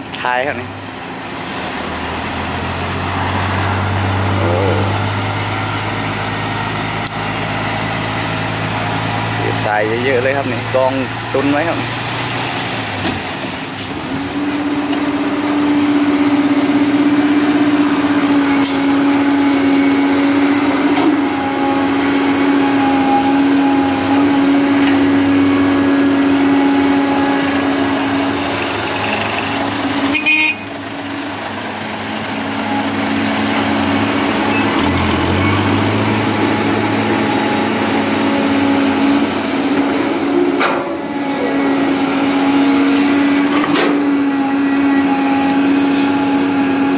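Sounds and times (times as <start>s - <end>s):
heavy diesel machinery droning: 0.0s - 46.9s
deeper engine note rising: 1.3s - 12.5s, 31.0s - 43.6s.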